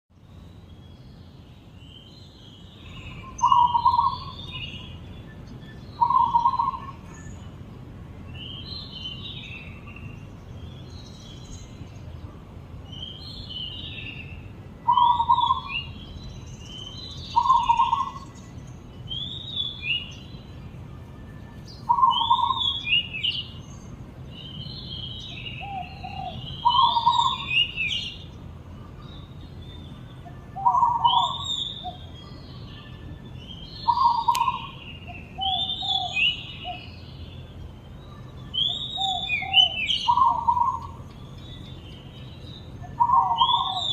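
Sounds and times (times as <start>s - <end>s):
songbird whistling and warbling: 1.9s - 7.6s, 12.9s - 43.9s
dove cooing: 3.4s - 4.4s, 6.0s - 7.0s, 14.9s - 15.7s, 17.4s - 18.3s, 21.9s - 23.0s, 25.6s - 27.8s, 30.2s - 32.0s, 33.8s - 36.9s, 39.0s - 41.0s, 42.8s - 43.9s.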